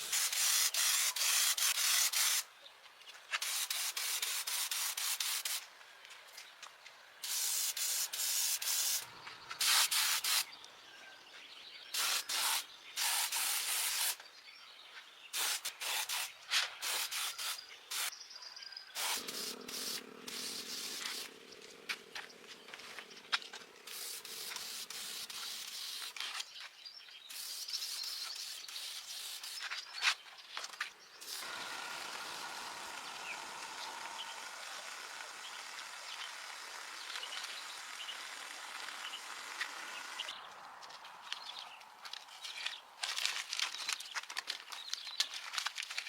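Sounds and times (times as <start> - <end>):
hand sanding: 19.0 - 21.4.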